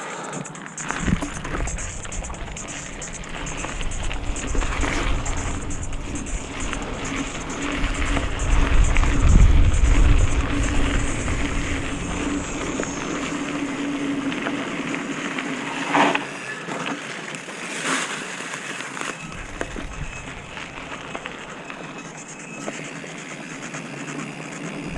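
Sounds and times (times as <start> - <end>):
steady hum: 0.0 - 16.5, 19.2 - 24.9
wind buffeting microphone: 0.8 - 15.0, 19.2 - 22.1.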